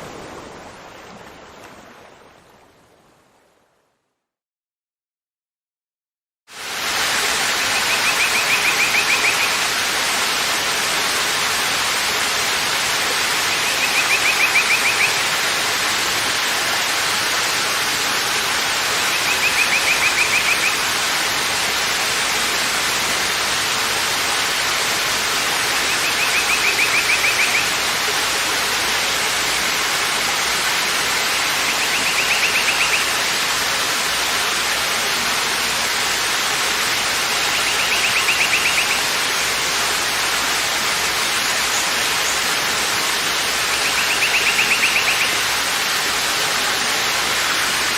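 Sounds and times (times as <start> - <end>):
waterfall roaring: 6.6 - 47.9.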